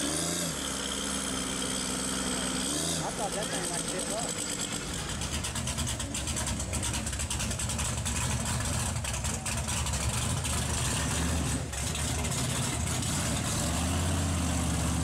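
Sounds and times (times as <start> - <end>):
truck engine rumbling: 0.0 - 15.0
fast rattle: 3.3 - 13.0.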